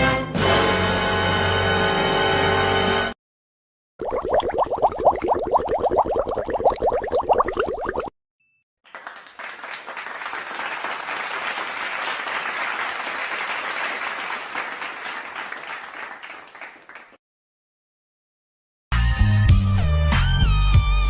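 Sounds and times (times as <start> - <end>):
crowd applauding: 8.9 - 17.2.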